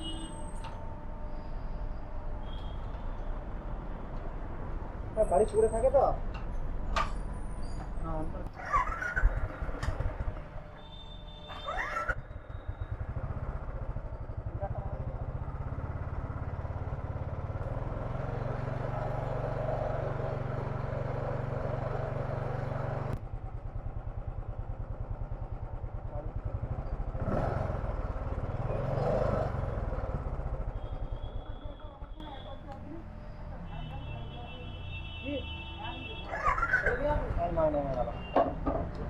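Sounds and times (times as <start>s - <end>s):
motorcycle engine idling: 8.1s - 17.8s, 23.2s - 27.2s, 29.7s - 39.0s.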